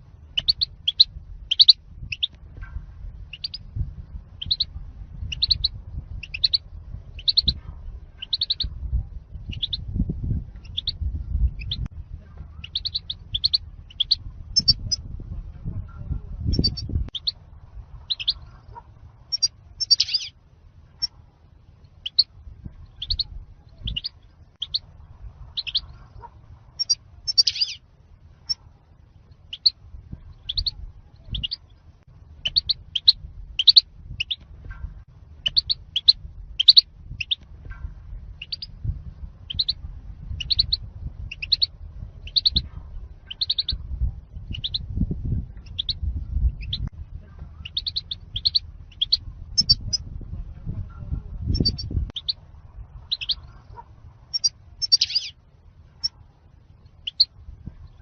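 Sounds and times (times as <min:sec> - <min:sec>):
low rumble: 0:00.0 - 0:58.0
bird high chirps: 0:00.3 - 0:02.4, 0:03.3 - 0:03.7, 0:04.4 - 0:08.7, 0:09.5 - 0:09.9, 0:10.6 - 0:11.9, 0:12.6 - 0:15.0, 0:16.5 - 0:17.4, 0:18.1 - 0:18.6, 0:19.3 - 0:20.4, 0:21.8 - 0:24.9, 0:25.5 - 0:27.8, 0:29.4 - 0:31.8, 0:32.4 - 0:34.4, 0:35.4 - 0:37.8, 0:38.4 - 0:38.8, 0:39.5 - 0:43.8, 0:44.4 - 0:45.0, 0:45.6 - 0:46.9, 0:47.6 - 0:50.1, 0:51.5 - 0:52.4, 0:53.0 - 0:55.4, 0:57.0 - 0:58.0.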